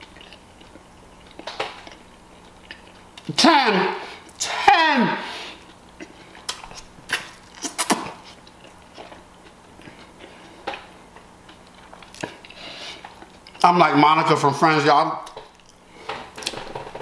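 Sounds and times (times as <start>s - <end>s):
person chewing food: 0.0s - 3.3s, 5.4s - 13.6s
wet mouth clicks and smacks: 6.5s - 8.8s.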